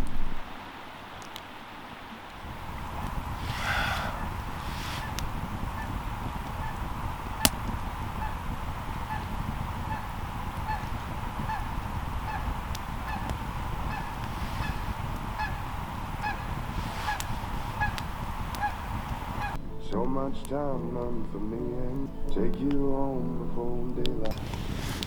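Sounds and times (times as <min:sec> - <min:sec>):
low rushing noise: 0:00.0 - 0:21.9
tooting animal calls: 0:02.5 - 0:19.6.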